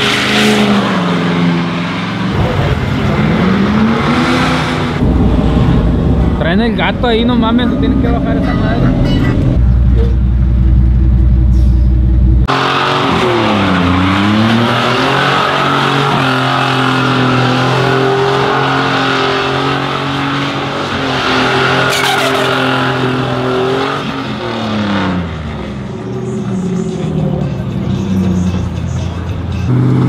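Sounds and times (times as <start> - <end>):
tires squealing: 11.4 - 30.0
pickup truck engine revving: 12.3 - 28.6.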